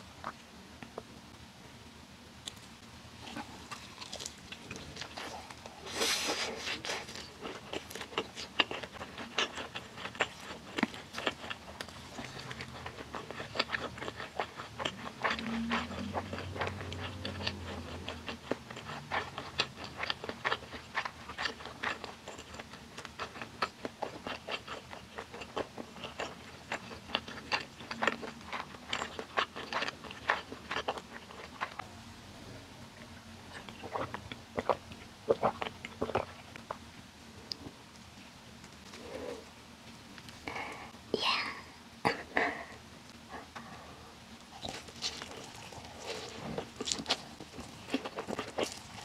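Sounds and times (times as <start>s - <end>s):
wet chewing: 2.5s - 31.8s, 33.5s - 36.8s, 44.5s - 49.0s.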